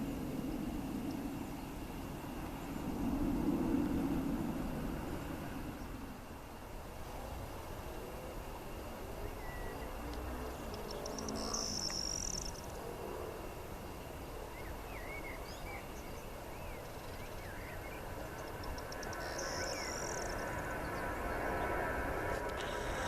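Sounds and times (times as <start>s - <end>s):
whistled bird chirps: 9.3s - 9.9s, 10.8s - 12.6s, 14.5s - 21.0s
high buzzy bird trill: 9.3s - 12.8s, 16.6s - 21.8s.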